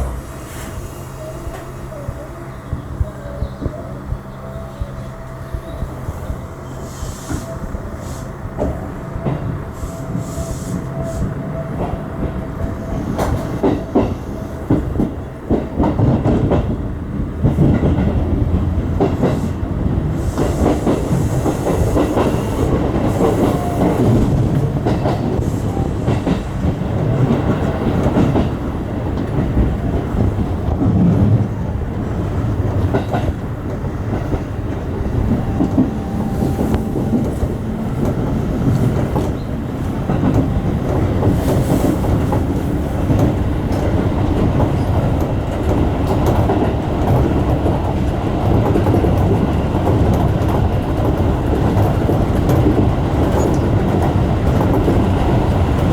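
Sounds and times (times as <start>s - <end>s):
electric train running: 0.0s - 55.9s
wheels clicking over rail joints: 20.4s - 55.9s.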